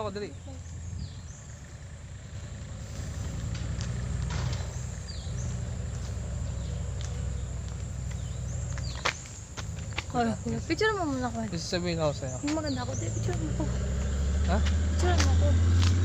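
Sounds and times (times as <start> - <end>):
faint high bird chirps: 0.0 - 3.4, 4.3 - 11.3
wind rumbling on microphone: 0.0 - 16.0.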